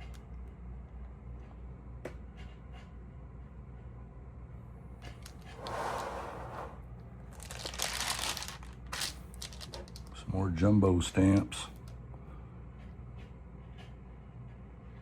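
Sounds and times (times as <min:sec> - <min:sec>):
album page rustling: 0:07.3 - 0:10.0.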